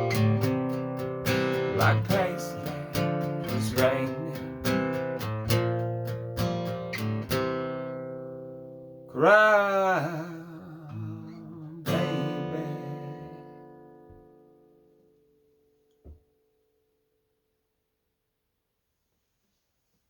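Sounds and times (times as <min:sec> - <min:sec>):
guitar chord strummed: 0:00.0 - 0:10.3, 0:11.0 - 0:14.8
acoustic guitar picking: 0:00.0 - 0:14.8
wordless singing: 0:01.4 - 0:04.6, 0:09.2 - 0:13.5.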